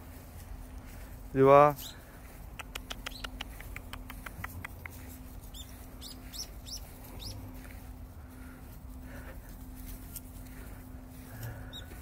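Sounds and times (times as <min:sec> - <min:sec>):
high falling bird chirps: 0:05.4 - 0:07.4.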